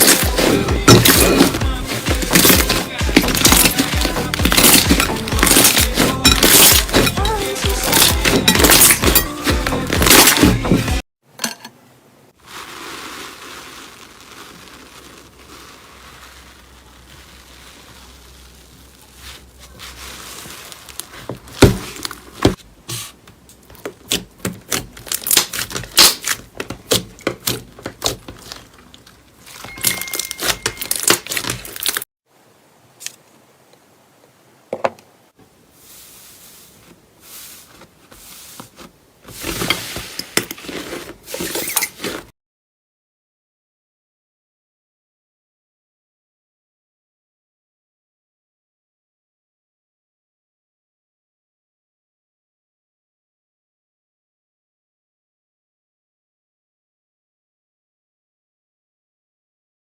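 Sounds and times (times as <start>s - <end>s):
slime crackling and popping: 12.5s - 22.4s.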